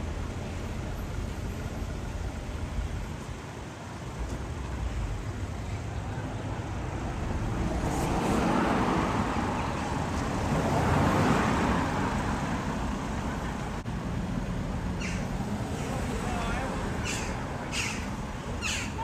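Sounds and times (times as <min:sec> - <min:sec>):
vehicle passing: 0:06.5 - 0:19.0.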